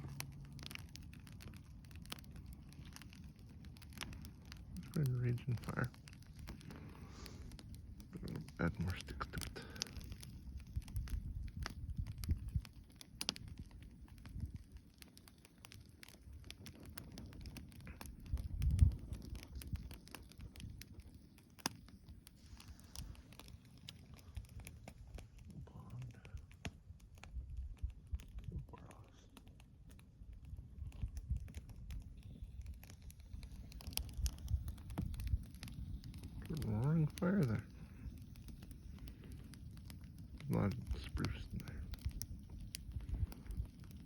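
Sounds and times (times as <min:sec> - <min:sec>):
campfire crackling and popping: 0:00.0 - 0:44.0
low rumble of flames: 0:00.0 - 0:44.0.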